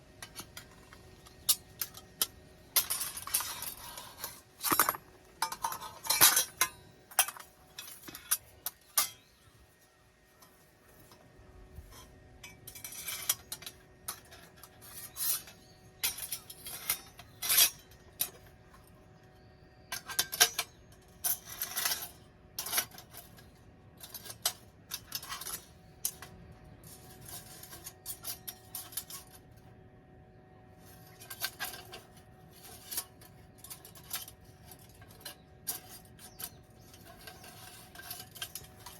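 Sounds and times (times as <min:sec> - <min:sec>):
metal gear clinking and clattering: 0:00.2 - 0:09.4, 0:30.8 - 0:38.9.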